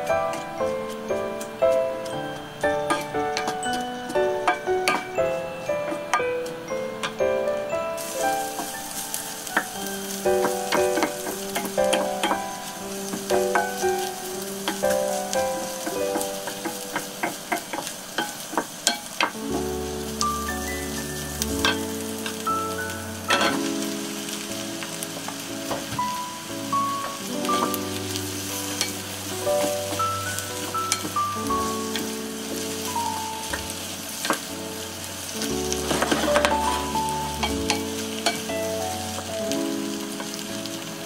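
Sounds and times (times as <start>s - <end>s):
onions sizzling in a pan: 0.0s - 41.0s
soft background music: 0.0s - 41.0s
wooden spatula scraping pan: 27.0s - 32.9s, 35.4s - 38.5s.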